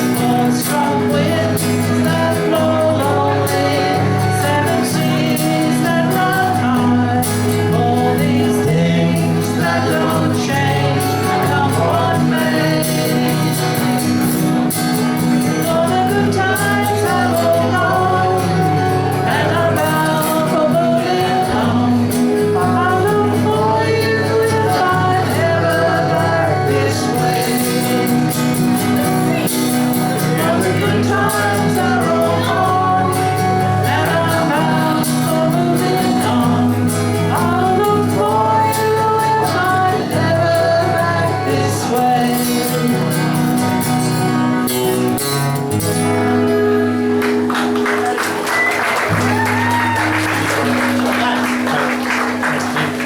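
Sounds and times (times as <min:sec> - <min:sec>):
instrumental backing: 0:00.0 - 0:53.0
voices singing folk song: 0:00.0 - 0:53.0
audience applause: 0:47.1 - 0:53.0.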